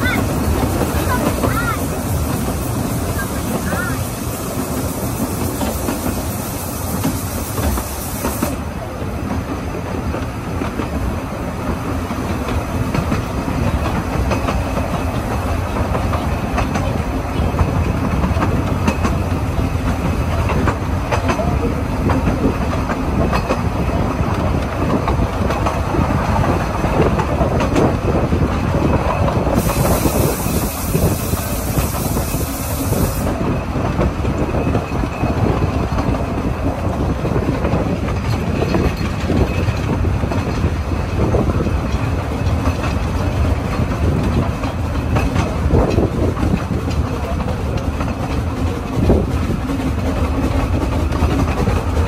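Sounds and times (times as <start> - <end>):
high steam hiss: 0.0 - 9.4, 28.6 - 33.9
wheels rumbling on rails: 0.0 - 52.0.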